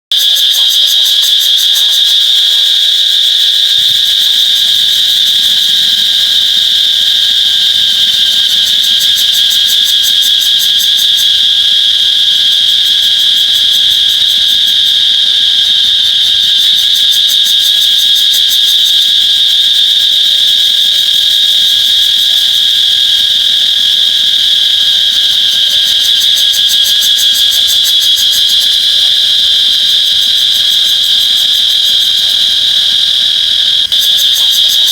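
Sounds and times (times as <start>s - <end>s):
cicadas buzzing: 0.1s - 34.9s.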